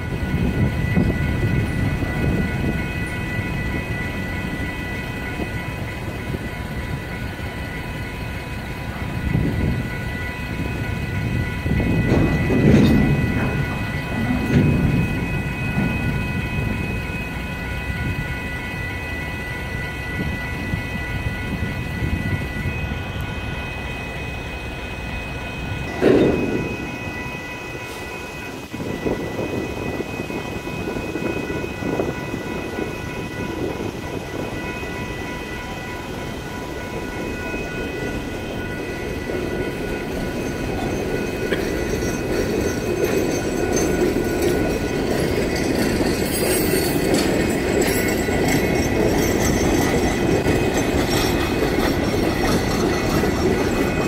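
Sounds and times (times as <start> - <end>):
crossing warning bells ringing: 0.0 - 54.0
freight cars clanking: 11.9 - 16.3, 25.9 - 28.6.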